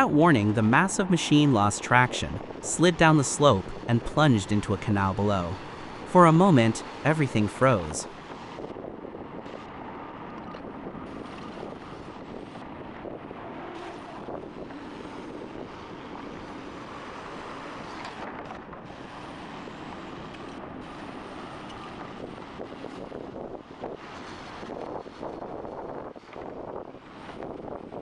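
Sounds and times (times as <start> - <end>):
wind buffeting microphone: 0.0 - 4.1, 8.0 - 28.0
heavy machinery running: 0.0 - 23.0.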